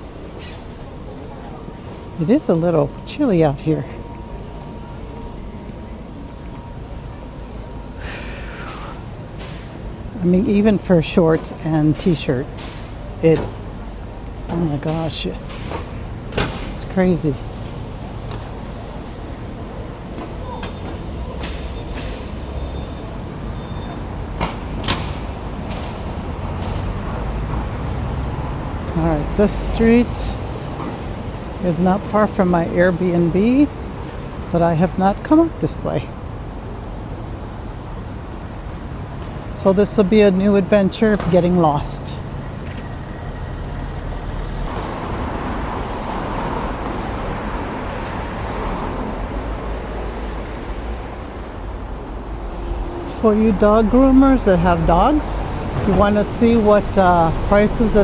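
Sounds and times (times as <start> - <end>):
low street rumble: 0.0 - 58.0
vehicle passing close by: 25.2 - 29.3.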